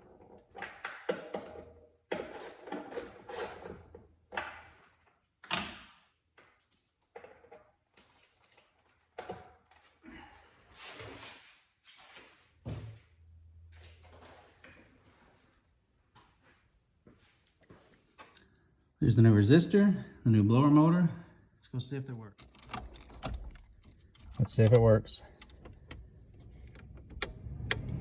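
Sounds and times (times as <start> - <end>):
tools and car parts clunking: 22.4 - 27.9.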